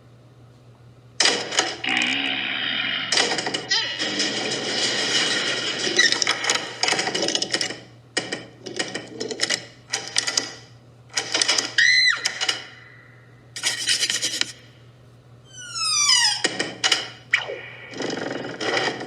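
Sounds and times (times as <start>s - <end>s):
rising and falling squeak: 15.5s - 16.5s.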